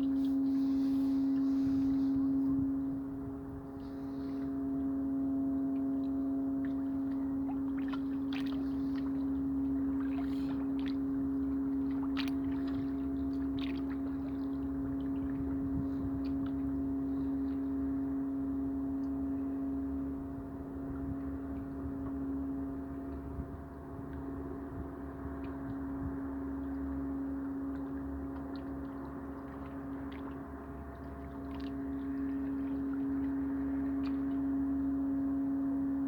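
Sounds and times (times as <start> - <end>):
steady low hum: 0.0 - 36.0
small splashes: 6.6 - 15.6, 27.7 - 34.5.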